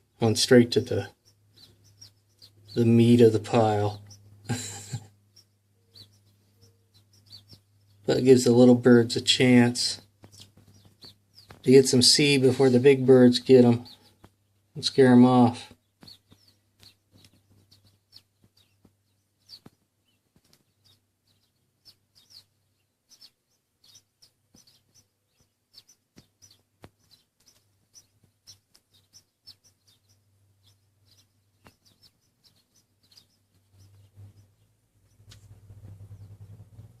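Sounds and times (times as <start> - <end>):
small birds chirping: 0.0 - 37.0
low hum: 33.8 - 37.0.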